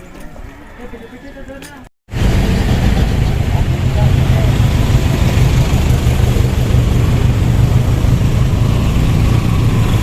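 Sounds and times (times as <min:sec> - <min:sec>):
motorcycle engine rumbling: 0:02.1 - 0:10.0
rushing wind noise: 0:02.1 - 0:10.0.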